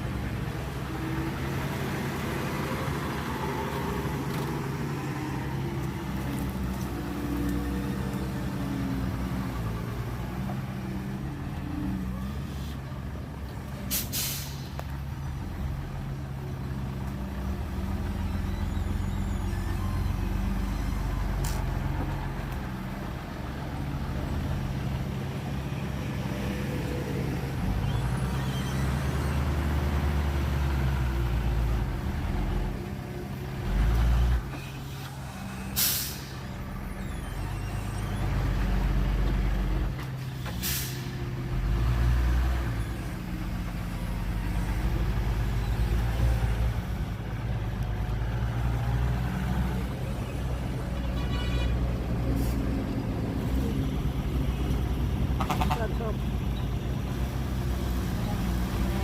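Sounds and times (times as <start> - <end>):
diesel truck engine running: 0.0 - 51.1
air brake hisses: 13.9 - 14.9, 34.9 - 36.5, 40.4 - 41.2.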